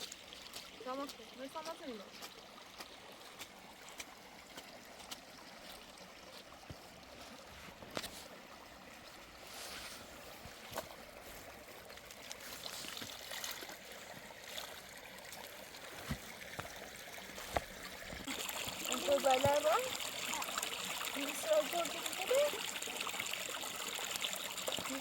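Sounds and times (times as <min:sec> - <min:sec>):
running water hissing: 0:14.6 - 0:25.0.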